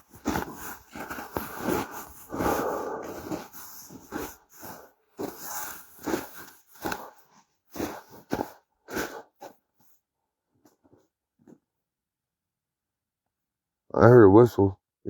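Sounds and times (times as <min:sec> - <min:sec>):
footsteps crunching on ground: 0:00.0 - 0:09.2.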